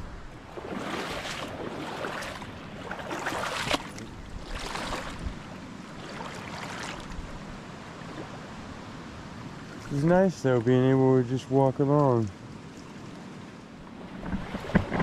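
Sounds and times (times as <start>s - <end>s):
stream running: 0.0s - 15.0s
boots splashing through water: 0.4s - 7.2s, 14.1s - 15.0s.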